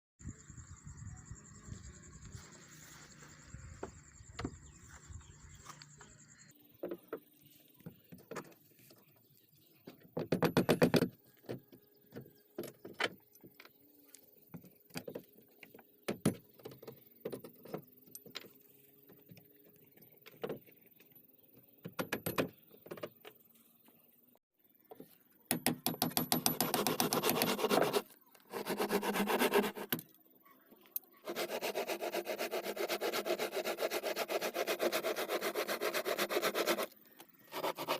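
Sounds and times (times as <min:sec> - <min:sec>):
scraping strokes on wood: 0:26.5 - 0:30.0, 0:31.2 - 0:37.9.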